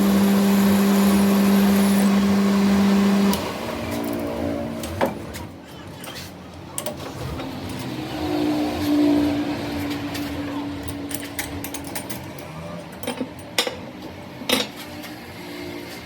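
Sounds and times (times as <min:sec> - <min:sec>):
motor humming: 0:00.0 - 0:04.2.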